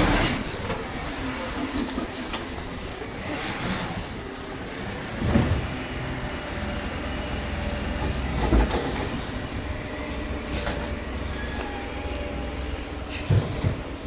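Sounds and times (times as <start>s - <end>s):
rubbish truck engine running: 0.0s - 14.0s
heavy clunks: 13.2s - 14.0s.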